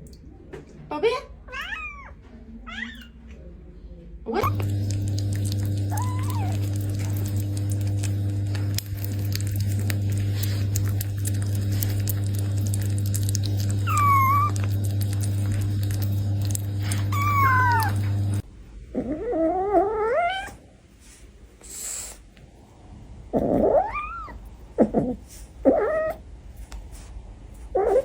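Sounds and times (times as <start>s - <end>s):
cat meowing: 1.5s - 3.2s, 5.9s - 6.8s, 13.8s - 14.7s, 16.9s - 18.1s, 19.0s - 20.6s.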